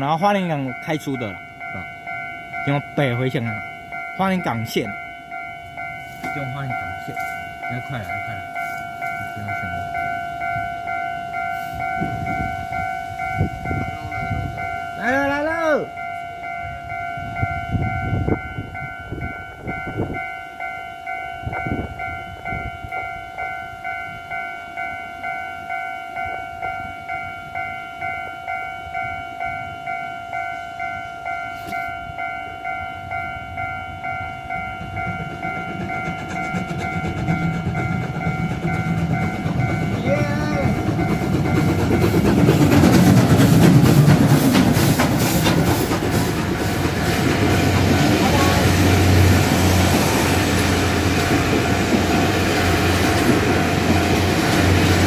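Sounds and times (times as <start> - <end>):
level-crossing alarm bell ringing: 0.0 - 55.0
steam train rumble: 0.0 - 55.0
train wheel clatter: 5.6 - 10.8, 34.0 - 55.0.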